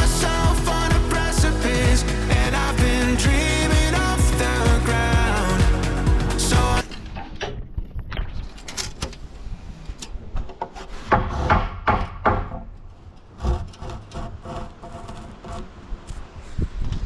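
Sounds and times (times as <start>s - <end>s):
rasping strokes on timber: 13.4s - 15.8s.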